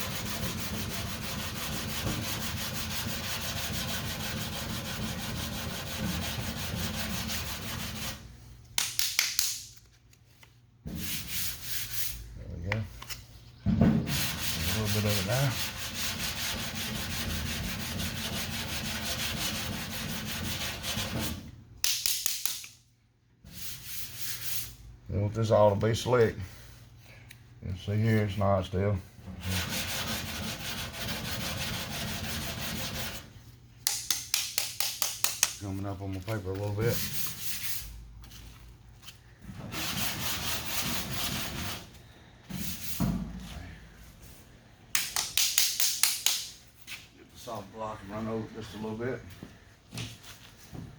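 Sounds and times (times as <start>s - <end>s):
sandpaper rubbing on car panel: 0.0s - 8.2s, 14.1s - 21.4s, 29.4s - 33.3s, 39.7s - 41.9s
short scrapes and knocks: 0.0s - 8.2s.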